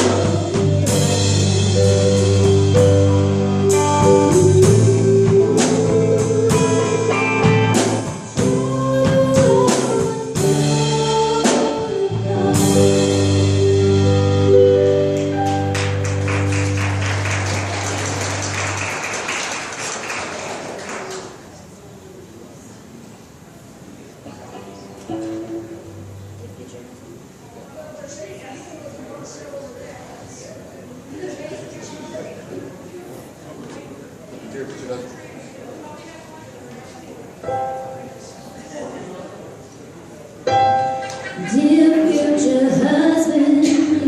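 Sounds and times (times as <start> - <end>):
electric guitar: 0.0 - 18.6
bass guitar: 0.0 - 18.8
drum kit: 0.0 - 19.2.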